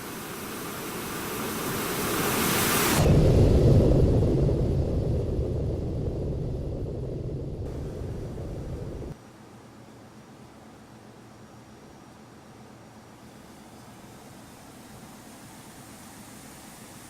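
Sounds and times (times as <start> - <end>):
jet rushing noise: 1.5 - 9.2
heavy low rumble: 3.0 - 9.2.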